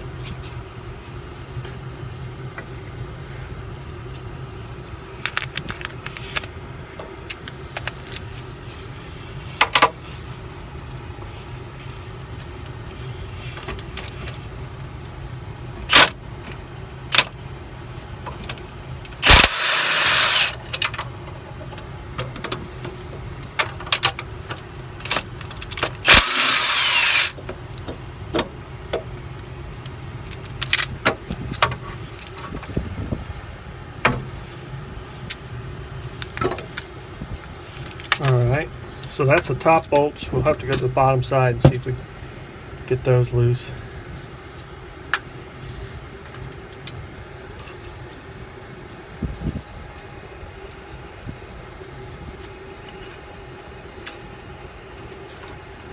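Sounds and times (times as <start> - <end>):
steady low hum: 0.0 - 55.9
pneumatic tool bursts: 15.9 - 16.2, 19.2 - 20.6, 26.0 - 27.4
metal clinks of wrenches: 19.2 - 20.9, 26.0 - 27.4.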